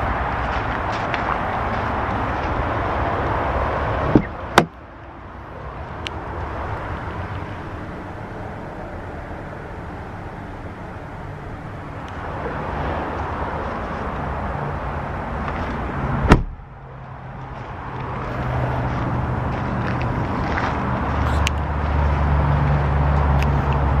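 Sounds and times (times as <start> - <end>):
low vehicle hum: 0.0 - 24.0
truck door shutting: 4.1 - 4.7, 16.2 - 16.6.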